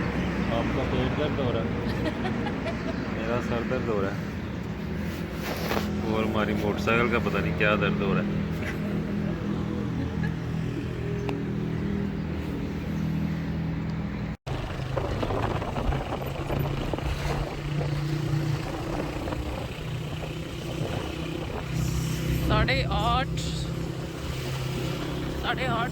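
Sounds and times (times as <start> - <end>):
road and wind noise: 0.0 - 25.9
motorcycle engine running: 14.5 - 25.9.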